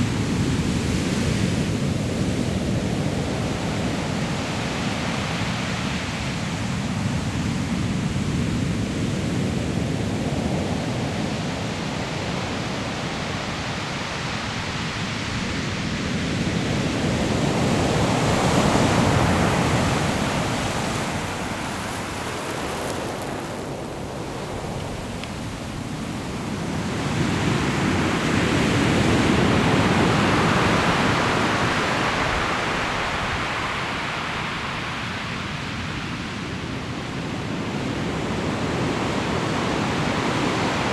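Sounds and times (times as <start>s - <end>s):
surf breaking on pebble shore: 17.3s - 35.8s.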